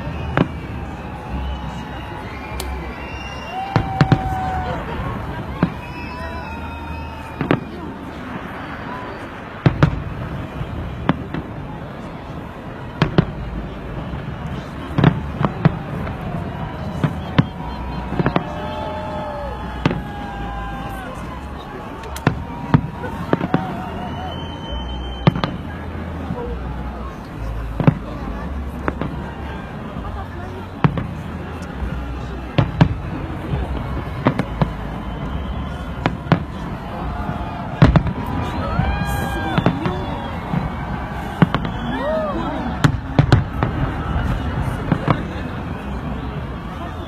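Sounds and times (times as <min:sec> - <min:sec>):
whistling tones sliding down: 0:00.0 - 0:04.1, 0:24.0 - 0:25.6, 0:34.4 - 0:36.2
crowd noise: 0:00.0 - 0:47.0
fireworks bangs: 0:00.0 - 0:47.0
fireworks crackle: 0:00.0 - 0:47.0.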